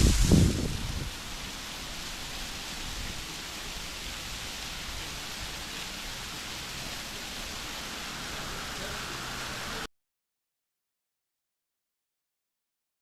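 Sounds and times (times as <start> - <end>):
waterfall rushing hiss: 0.0 - 9.9.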